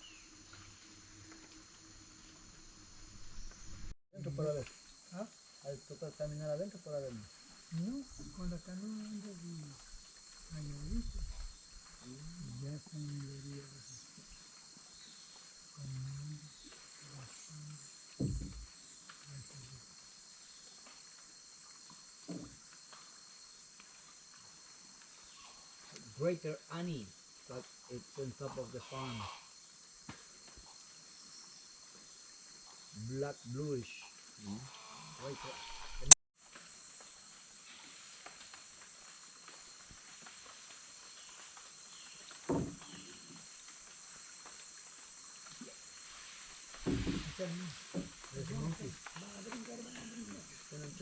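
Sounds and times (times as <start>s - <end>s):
chorus of rainforest insects: 0.0s - 3.6s, 4.2s - 51.0s
dull knock: 18.2s - 18.6s.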